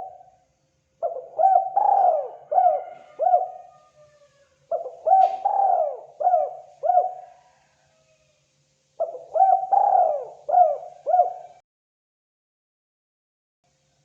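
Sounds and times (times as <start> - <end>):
dove cooing: 0.0 - 0.3, 1.0 - 8.2, 9.0 - 11.6.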